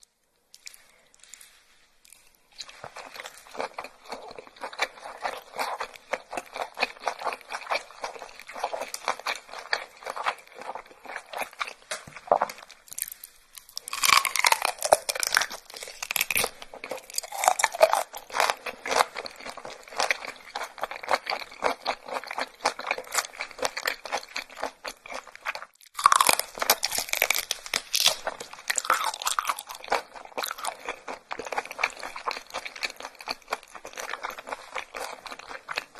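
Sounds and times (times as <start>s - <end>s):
person chewing crunchy food: 0.0s - 35.9s.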